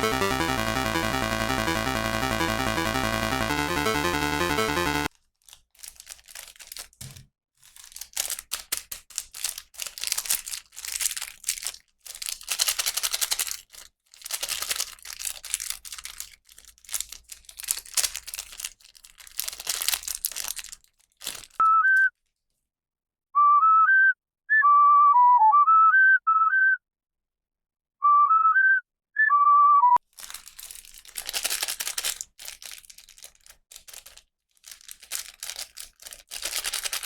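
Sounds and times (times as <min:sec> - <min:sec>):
plastic packaging crinkling: 0:05.1 - 0:21.6, 0:30.0 - 0:37.0
whistle-like tune: 0:21.6 - 0:22.1, 0:23.4 - 0:26.8, 0:28.0 - 0:30.0.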